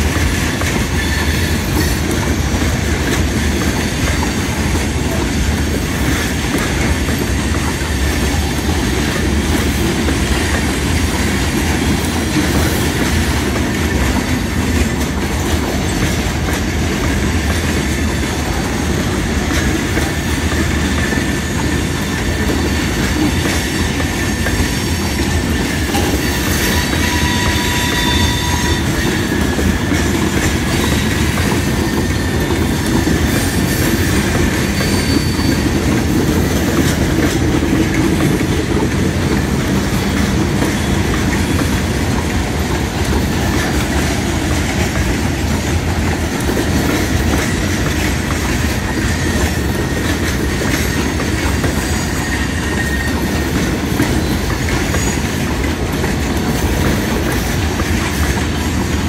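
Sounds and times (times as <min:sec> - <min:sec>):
train wheels rumbling on rails: 0:00.0 - 0:59.0
thin wheel squeals: 0:26.8 - 0:28.9, 0:34.7 - 0:35.6.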